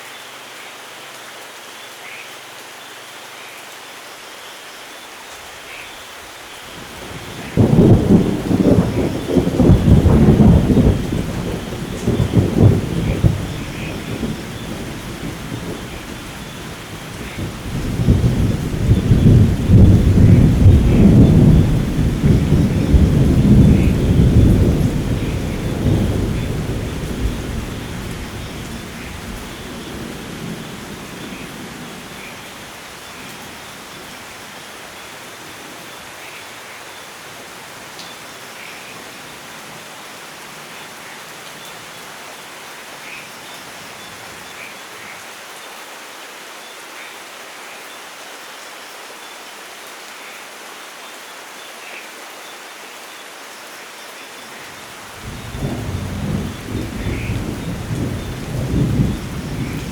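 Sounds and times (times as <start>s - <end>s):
steady rain: 0.0s - 59.9s
rolling thunder: 7.0s - 32.4s, 55.2s - 59.9s.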